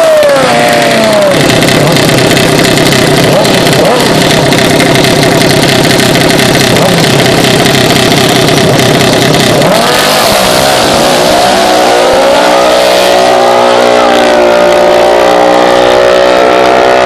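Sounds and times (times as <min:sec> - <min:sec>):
mini bike engines revving: 0:00.0 - 0:17.0.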